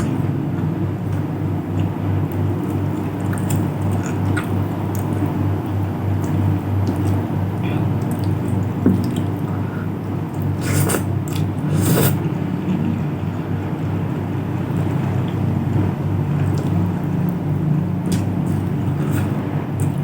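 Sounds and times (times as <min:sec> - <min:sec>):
wet mouth noises: 0:10.3 - 0:12.2
chewing: 0:18.1 - 0:20.0.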